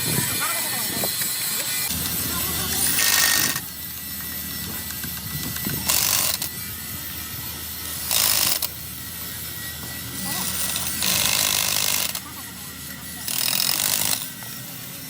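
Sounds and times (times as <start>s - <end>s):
tool rasping bursts: 0.0s - 15.0s.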